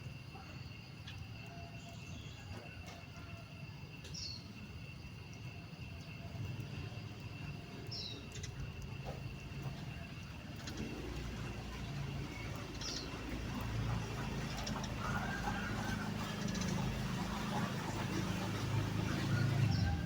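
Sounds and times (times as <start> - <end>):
faint continuous high tone: 0.0 - 20.0.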